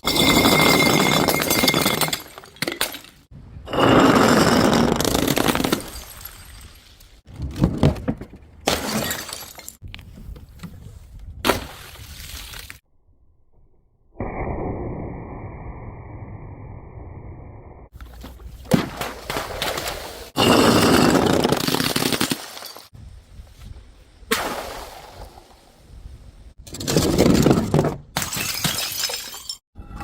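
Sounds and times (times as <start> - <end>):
glass bottles smashing: 0.0 - 3.3, 8.7 - 9.8, 20.4 - 22.9, 28.2 - 29.6.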